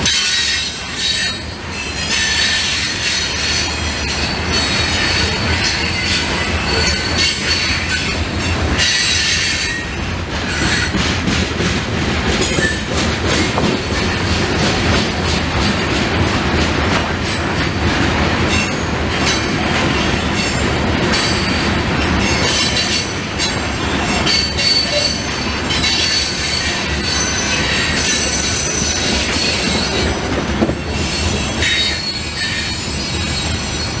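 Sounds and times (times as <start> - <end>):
high wheel squeal: 0.0 - 11.0, 18.5 - 34.0
freight train rumbling past: 0.0 - 34.0.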